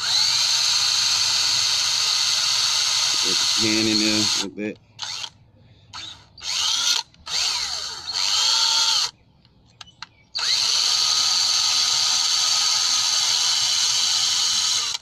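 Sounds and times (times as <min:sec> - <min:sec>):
power drill spinning bolt on wire brush: 0:02.4 - 0:05.3, 0:10.4 - 0:15.0.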